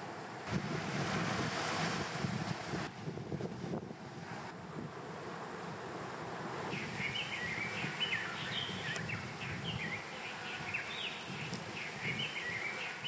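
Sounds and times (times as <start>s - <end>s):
wind rushing: 0.4s - 12.6s
small birds chirping: 6.7s - 13.0s.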